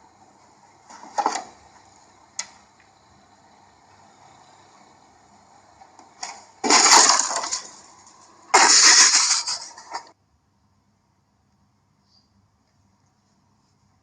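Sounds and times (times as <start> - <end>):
loud crashes: 6.3 - 7.8, 8.5 - 10.1.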